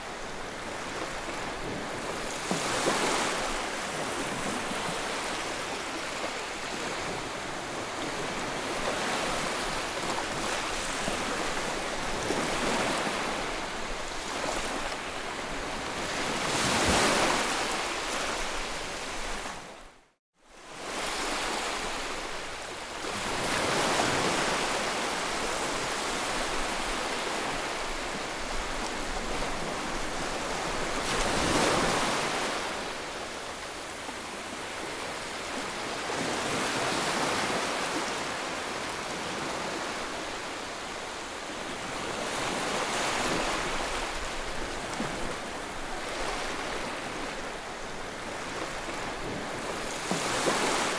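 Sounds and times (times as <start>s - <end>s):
ocean waves breaking: 0.0s - 19.7s, 23.0s - 50.9s.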